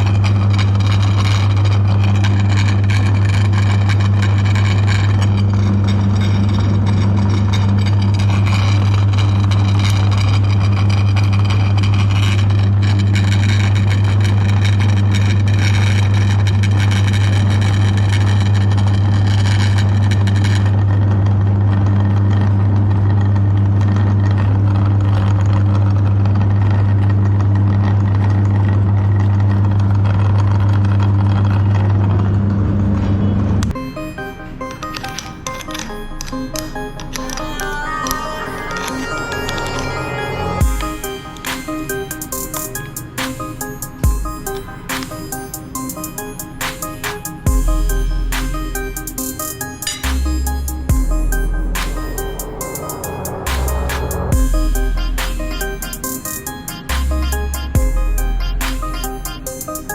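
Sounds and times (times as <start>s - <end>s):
grinder rasping: 0.0s - 32.5s, 34.6s - 59.9s
meat grinder motor hum: 0.0s - 32.9s.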